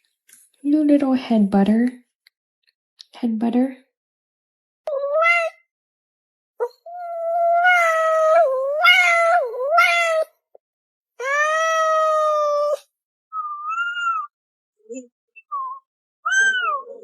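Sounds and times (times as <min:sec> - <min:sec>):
cat yowling: 0:04.9 - 0:05.7, 0:06.6 - 0:10.3, 0:11.2 - 0:14.3, 0:16.2 - 0:17.0.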